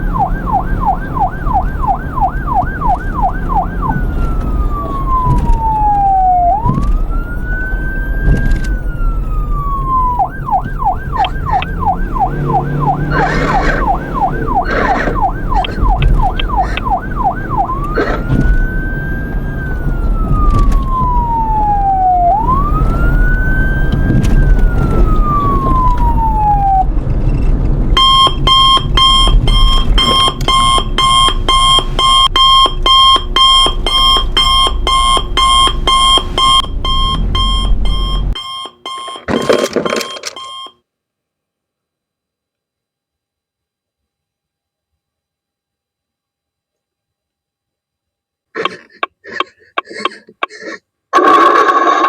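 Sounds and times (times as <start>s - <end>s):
rapid electronic beeping alarm: 0.0s - 6.7s, 9.8s - 20.2s, 28.0s - 40.8s
electronic siren yelp and wail: 0.0s - 27.1s, 28.0s - 40.3s.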